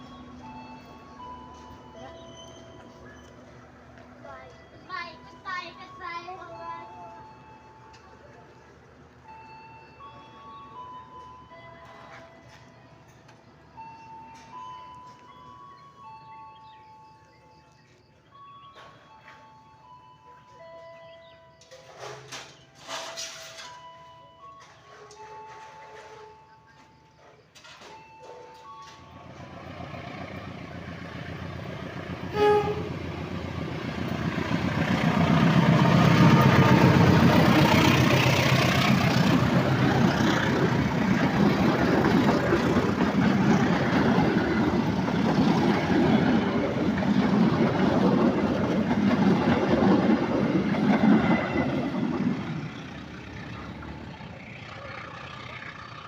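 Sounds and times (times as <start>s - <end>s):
train wheels rumbling on rails: 21.0s - 56.0s
train horn toot: 24.9s - 26.6s, 32.2s - 33.2s.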